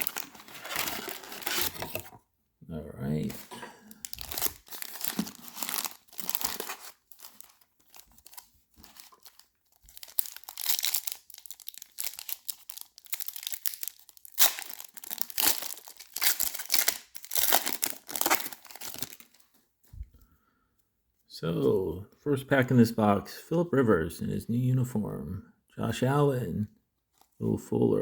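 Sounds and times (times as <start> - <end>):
plastic wrapping crinkling and tearing: 0.0 - 2.0, 3.2 - 19.5.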